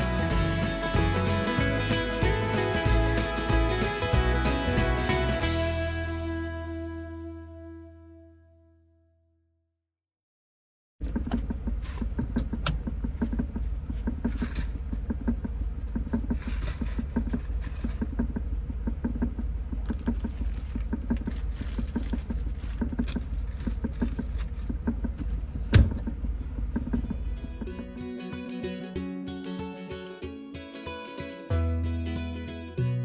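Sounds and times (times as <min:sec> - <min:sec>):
truck engine rumbling: 0:00.0 - 0:08.2, 0:11.0 - 0:29.0, 0:30.9 - 0:33.0
loud thump: 0:25.6 - 0:26.1.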